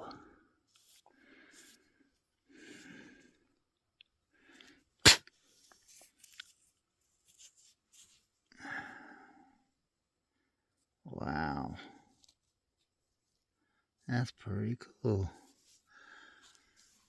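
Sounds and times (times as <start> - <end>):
breaths: 0.0 - 3.6, 4.3 - 4.9, 8.5 - 9.7, 15.7 - 17.0.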